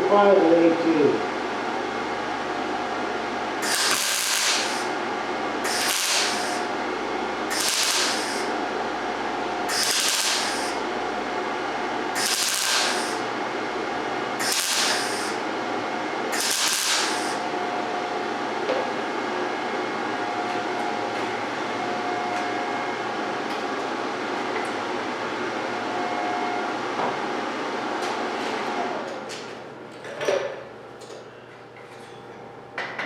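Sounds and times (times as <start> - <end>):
welder steady hum: 1.7 - 18.6
welding arc crackling: 3.6 - 11.5, 12.1 - 15.6, 16.3 - 17.6.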